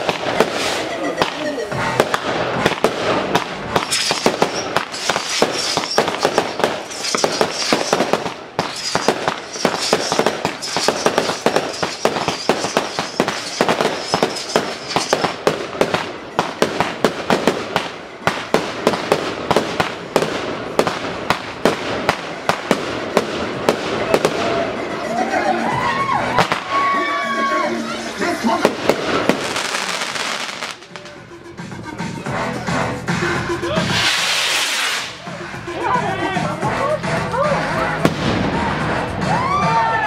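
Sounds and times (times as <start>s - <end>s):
fireworks bangs and crackles: 0.0s - 32.3s, 33.0s - 40.0s.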